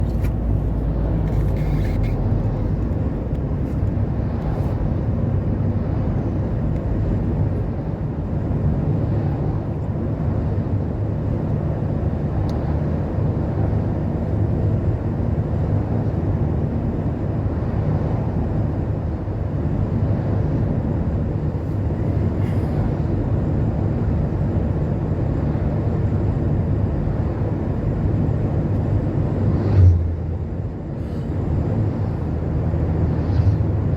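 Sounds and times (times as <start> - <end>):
vehicle and road rumble: 0.0 - 33.9
trucks passing: 29.3 - 33.9.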